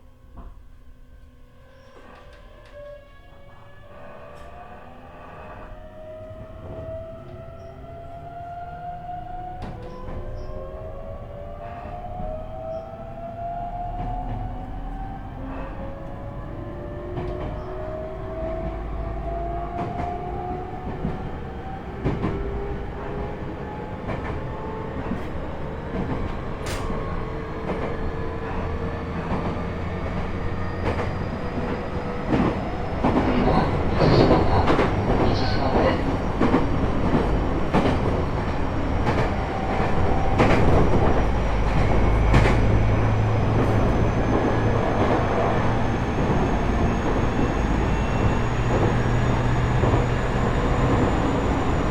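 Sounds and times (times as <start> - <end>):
train rumble: 0.0 - 51.9
rail-joint clicks: 24.0 - 45.2.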